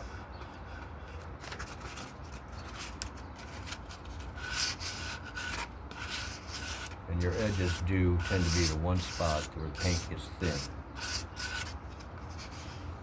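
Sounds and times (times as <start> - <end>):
sandpaper scratching: 4.2 - 11.8.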